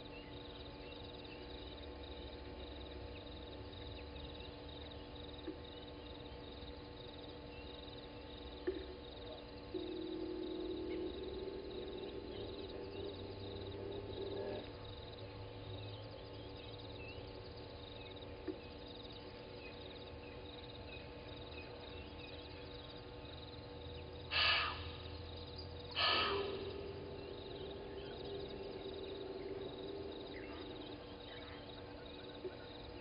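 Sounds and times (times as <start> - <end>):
faint bird chirps: 0.0 - 33.0
steady low drone: 0.0 - 33.0
animal snorts: 24.3 - 24.8, 26.0 - 26.6.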